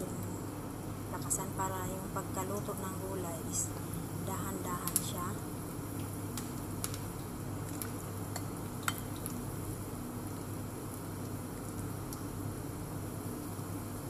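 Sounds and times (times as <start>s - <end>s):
batter sizzling in oil: 0.0s - 14.0s
spatula clicking against pan: 7.8s - 9.3s.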